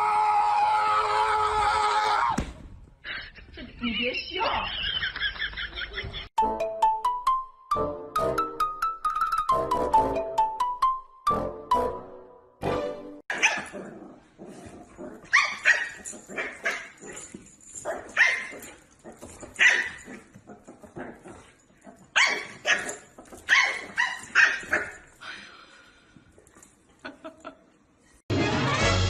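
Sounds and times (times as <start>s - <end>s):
dog barking: 13.3s - 13.8s, 19.6s - 20.1s, 22.1s - 25.0s.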